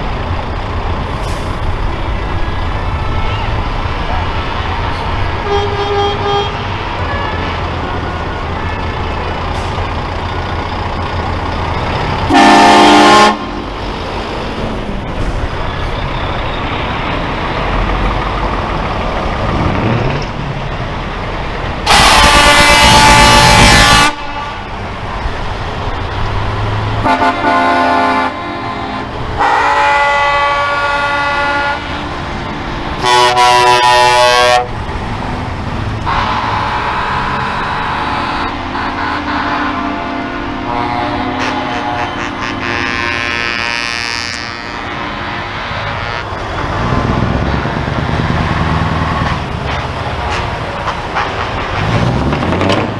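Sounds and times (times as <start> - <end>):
diesel trucks rumbling past: 0.0 - 52.9
truck air horn blasts: 3.0 - 7.7, 10.9 - 13.9, 21.8 - 24.9, 27.0 - 34.9, 36.0 - 47.2, 49.0 - 52.3.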